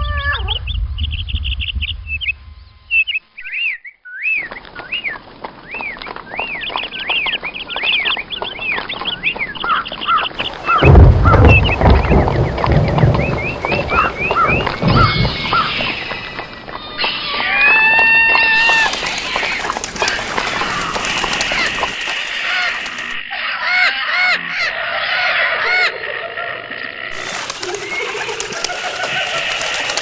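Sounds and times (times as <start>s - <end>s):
bird-like calls: 0.0s - 30.0s
constant hiss: 18.6s - 23.2s, 27.1s - 30.0s.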